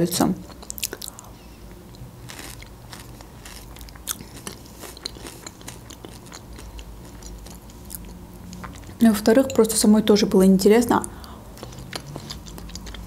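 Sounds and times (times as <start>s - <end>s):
crunchy chewing: 0.5s - 9.0s, 11.6s - 13.0s.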